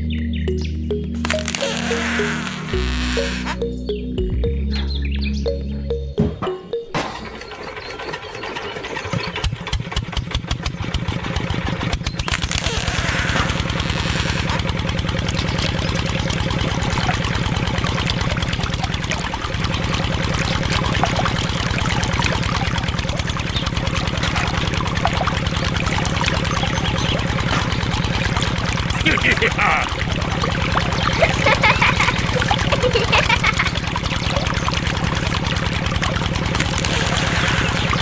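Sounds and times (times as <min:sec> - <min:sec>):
diesel engine chugging: 0:13.6 - 0:38.0.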